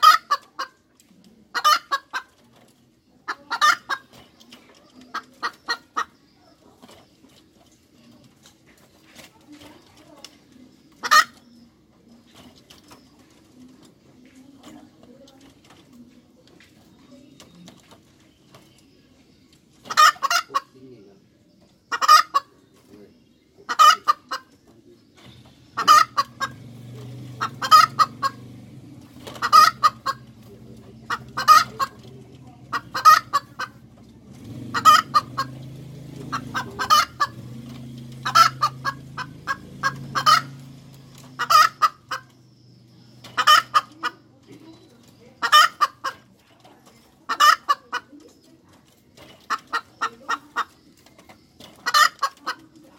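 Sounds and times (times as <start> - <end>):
hen cackling: 0.0 - 0.9, 1.5 - 2.4, 3.2 - 4.2, 10.9 - 11.5, 19.8 - 20.8, 21.9 - 22.6, 23.6 - 24.5, 25.6 - 42.4, 43.0 - 44.4, 45.4 - 46.4, 47.2 - 48.1, 51.7 - 52.7.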